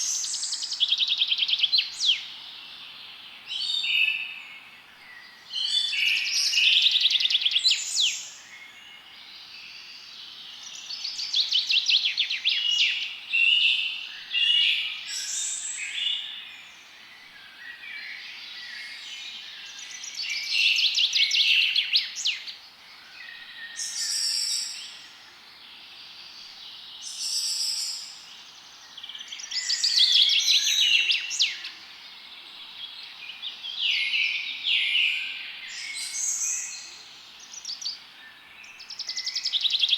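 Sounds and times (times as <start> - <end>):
faint steady hiss: 0.0 - 39.9
songbirds trilling and chirping: 0.0 - 39.9.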